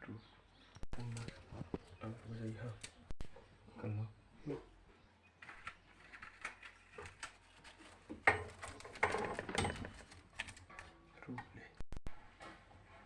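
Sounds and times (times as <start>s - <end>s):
small hard objects clattering: 5.4s - 10.7s.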